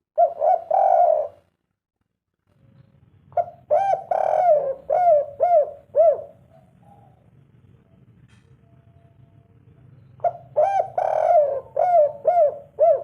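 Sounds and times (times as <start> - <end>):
dove cooing: 0.2 - 1.5, 3.3 - 7.3, 10.1 - 13.0.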